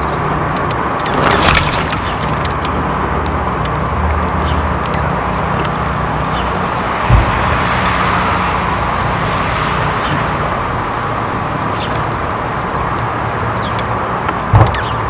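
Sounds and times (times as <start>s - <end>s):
distant road traffic rumble: 0.0s - 15.0s
small birds chirping: 0.0s - 15.0s
low thump: 7.0s - 8.1s, 14.5s - 15.0s.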